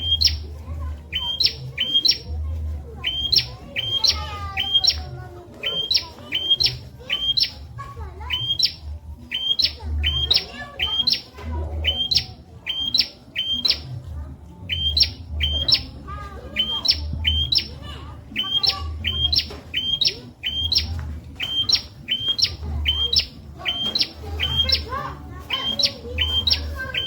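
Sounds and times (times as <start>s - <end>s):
bird sharp two-part chirp: 8.3s - 13.9s, 14.7s - 15.9s, 16.6s - 17.8s, 18.4s - 27.0s.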